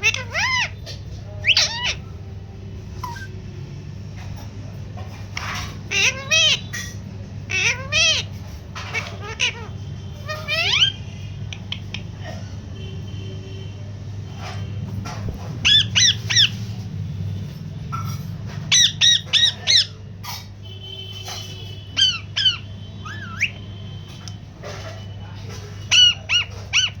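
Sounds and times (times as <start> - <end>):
cockatiel chirping: 3.0 - 3.4, 15.3 - 16.8, 17.9 - 20.4, 21.2 - 24.2.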